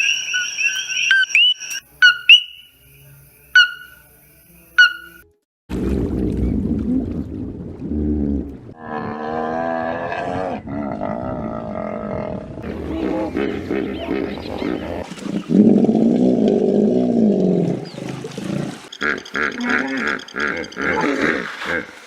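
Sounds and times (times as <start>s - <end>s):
wild animal roaring: 7.8s - 18.8s.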